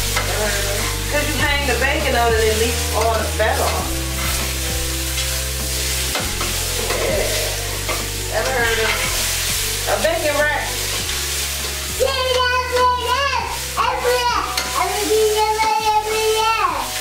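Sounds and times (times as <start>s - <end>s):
food sizzling in pans: 0.0s - 17.0s
music with low bass: 0.0s - 17.0s
spatula scraping metal pan: 0.1s - 10.1s.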